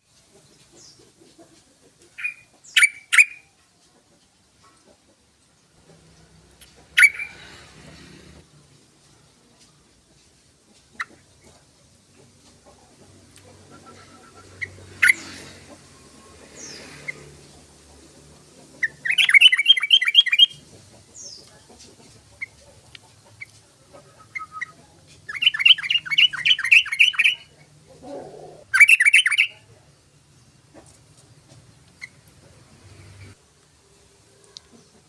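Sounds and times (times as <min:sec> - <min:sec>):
bird chirps: 0:02.1 - 0:03.5, 0:06.7 - 0:07.4, 0:18.7 - 0:21.5, 0:23.3 - 0:27.7, 0:28.7 - 0:29.6.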